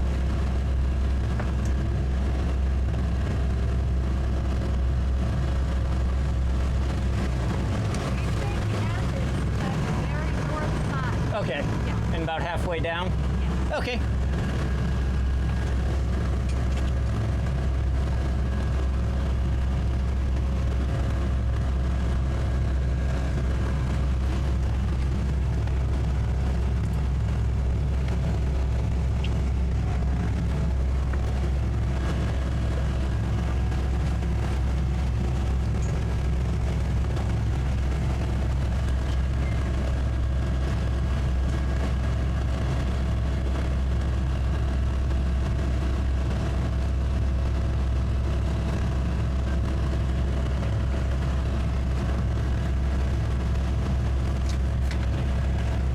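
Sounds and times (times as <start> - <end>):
outboard engines running: 0.0 - 55.9.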